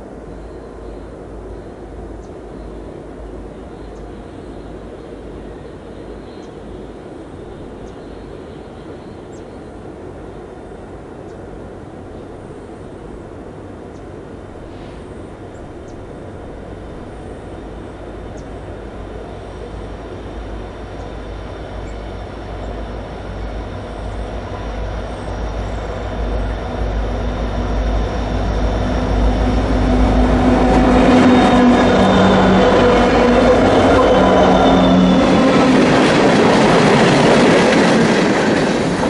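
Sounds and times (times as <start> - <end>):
diesel freight train approaching: 0.0 - 39.0.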